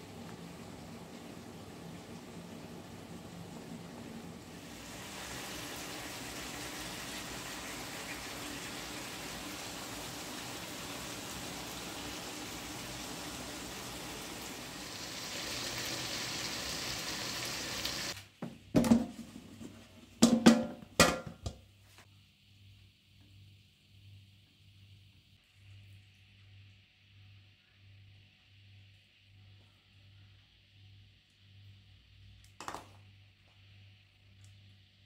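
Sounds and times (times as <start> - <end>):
food sizzling in a frying pan: 0.0 - 18.2.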